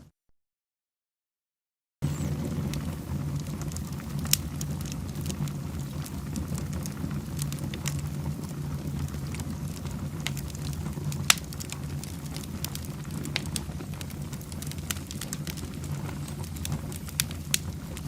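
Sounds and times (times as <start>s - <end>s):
fire crackles and pops: 2.0s - 18.0s
wood fire rumbling: 2.0s - 18.0s.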